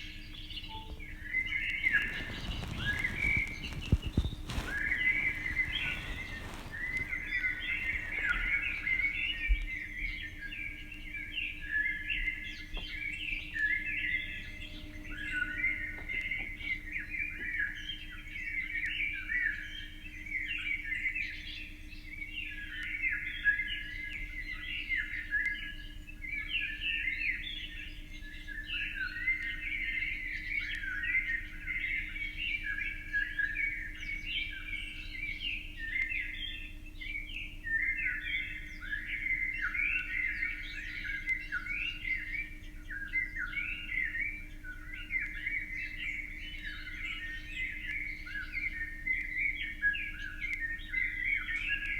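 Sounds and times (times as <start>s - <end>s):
small birds chirping: 0.0s - 14.6s, 27.9s - 51.9s.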